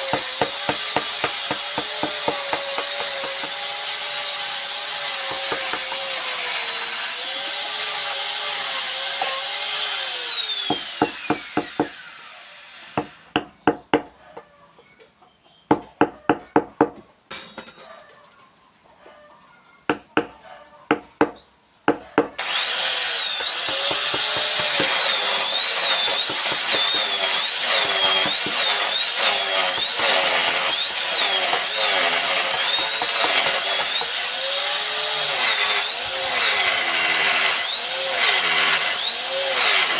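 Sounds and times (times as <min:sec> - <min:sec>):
rotary tool whining cutting wood: 0:00.0 - 0:13.5, 0:22.4 - 0:39.9.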